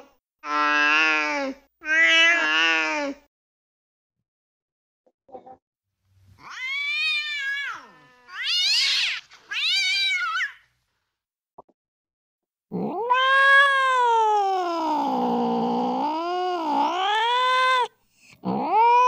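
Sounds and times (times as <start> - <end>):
angry cat yowling: 6.4 - 10.6, 12.7 - 19.0.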